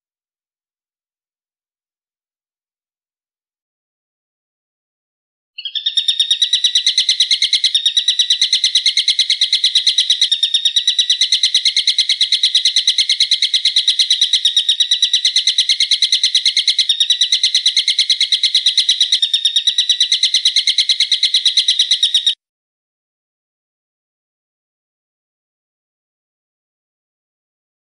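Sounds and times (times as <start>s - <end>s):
songbird trilling: 5.6s - 22.4s.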